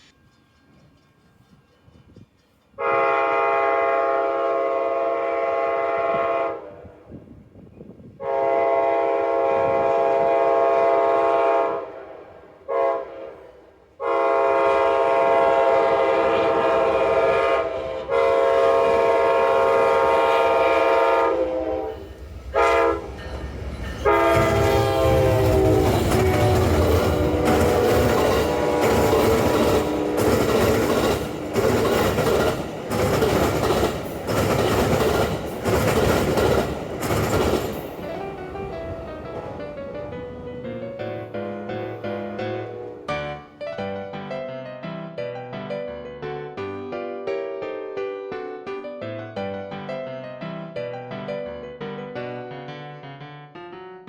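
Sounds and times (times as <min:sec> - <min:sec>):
locomotive air horn blasts: 0:02.8 - 0:07.0, 0:08.2 - 0:23.2, 0:24.0 - 0:32.0, 0:42.6 - 0:43.3
train rolling past rumble: 0:13.3 - 0:44.5.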